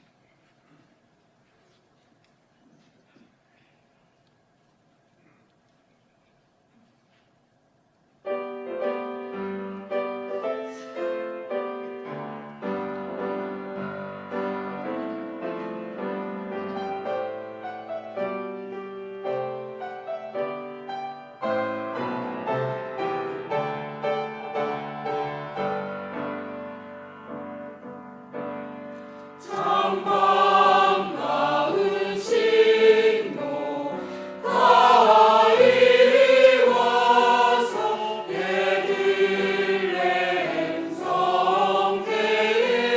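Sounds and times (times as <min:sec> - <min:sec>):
slow piano playing: 0:08.2 - 0:31.9
choir singing: 0:29.4 - 0:42.9.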